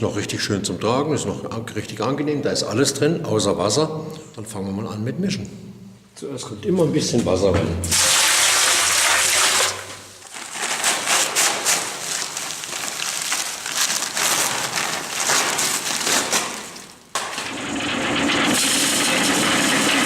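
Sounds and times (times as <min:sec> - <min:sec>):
concrete mix pouring into mixer drum: 0:07.9 - 0:16.5, 0:17.2 - 0:20.0.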